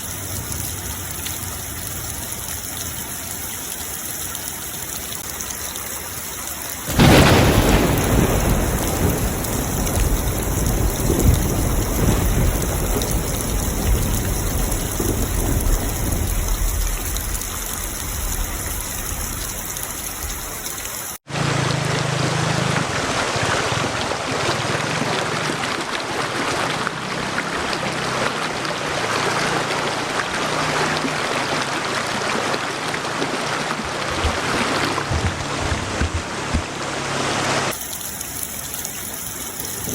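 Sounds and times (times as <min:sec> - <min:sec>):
heavy rain falling: 0:00.0 - 0:39.9
thunderclap: 0:06.9 - 0:19.6.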